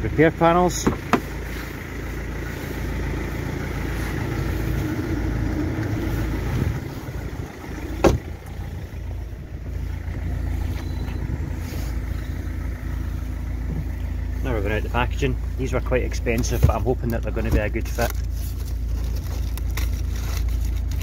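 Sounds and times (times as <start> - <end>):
car engine idling: 0.0 - 21.0
sharp latch clunk: 8.0 - 8.2.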